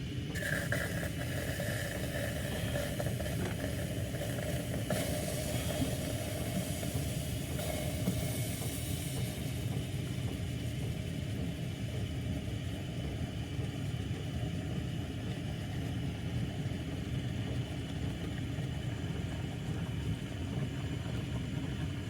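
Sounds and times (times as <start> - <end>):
gas burner hissing: 0.3 - 11.4.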